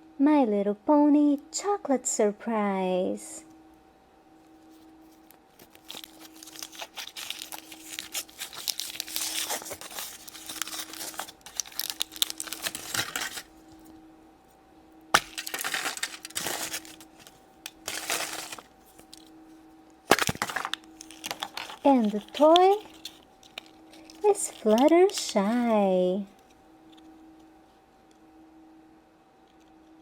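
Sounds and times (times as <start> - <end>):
faint steady hum: 0.0 - 30.0
foil wrapper crinkling and tearing: 5.1 - 13.8, 15.2 - 19.3, 20.1 - 26.5.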